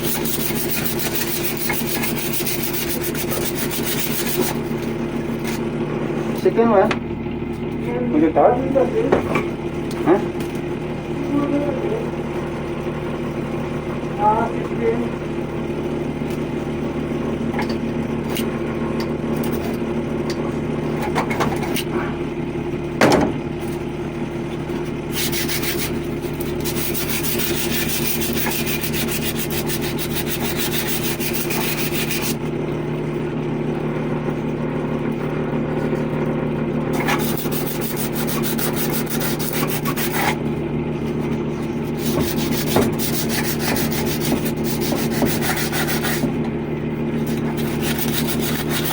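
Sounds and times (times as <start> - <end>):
sanding pipe by hand: 0.0 - 4.8, 25.1 - 32.4, 36.9 - 40.4, 41.9 - 46.3, 47.2 - 48.9
low machine hum: 0.0 - 48.9.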